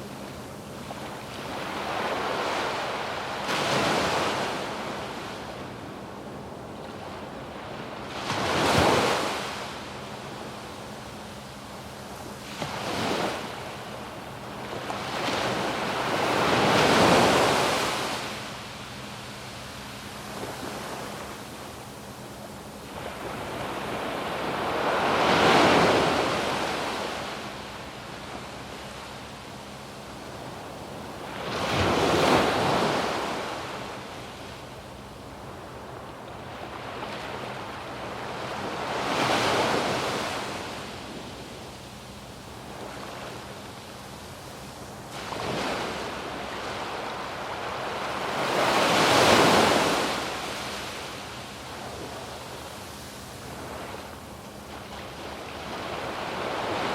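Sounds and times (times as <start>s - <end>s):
waves breaking on sandy beach: 0.0s - 56.9s.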